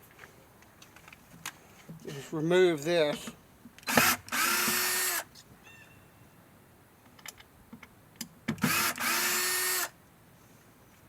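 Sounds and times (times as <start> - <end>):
cordless drill whirring: 3.9 - 5.3, 8.6 - 10.0.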